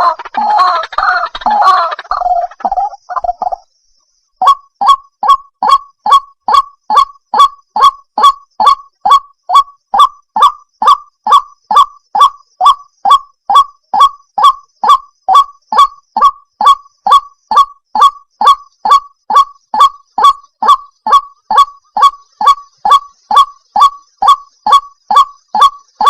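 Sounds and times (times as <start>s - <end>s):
waterhen honking call: 0.0s - 3.0s.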